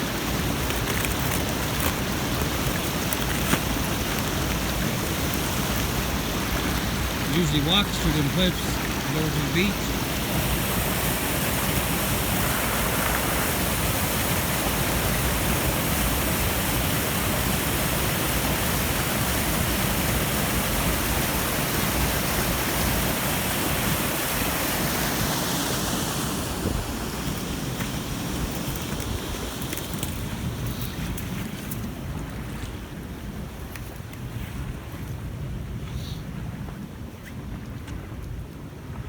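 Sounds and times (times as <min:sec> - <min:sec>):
brook rushing: 0:01.5 - 0:16.8.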